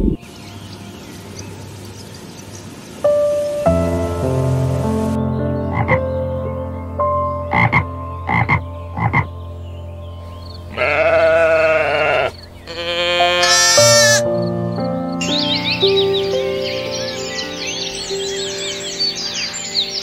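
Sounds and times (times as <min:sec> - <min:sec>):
frog croaking: 0:07.5 - 0:09.3, 0:10.7 - 0:14.5
sheep bleating: 0:10.7 - 0:14.3.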